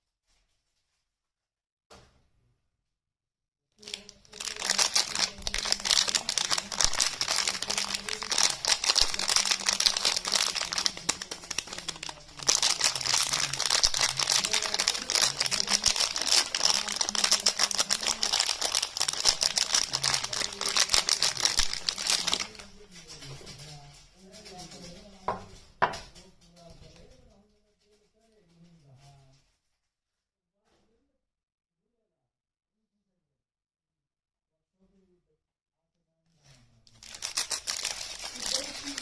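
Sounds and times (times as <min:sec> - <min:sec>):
wrapper crinkling: 0:03.8 - 0:25.6, 0:36.9 - 0:39.0.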